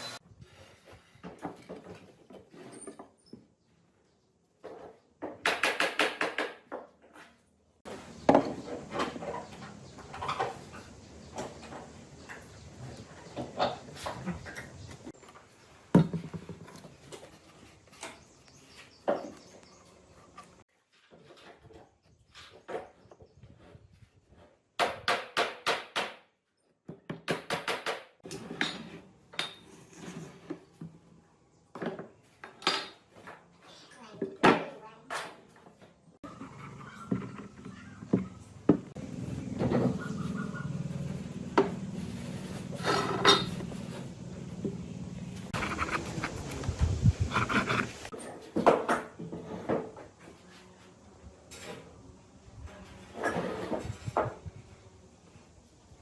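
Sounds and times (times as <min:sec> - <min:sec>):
knocks of wood or tools: 0:05.2 - 0:06.9, 0:24.8 - 0:26.2, 0:26.9 - 0:28.2.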